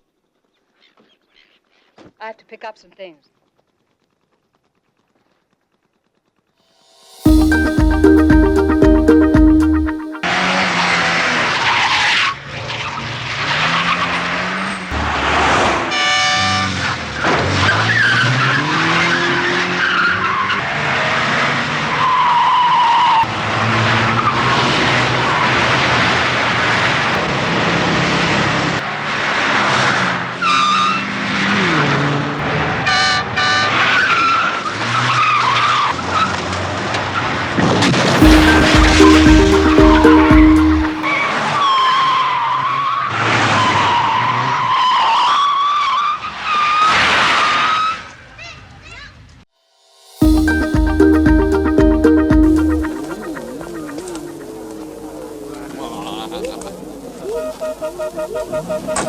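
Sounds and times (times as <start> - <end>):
car horn blaring: 7.3 - 11.2, 15.8 - 16.8, 32.7 - 33.9, 38.2 - 41.8
car engines revving: 10.3 - 37.2, 52.9 - 59.0.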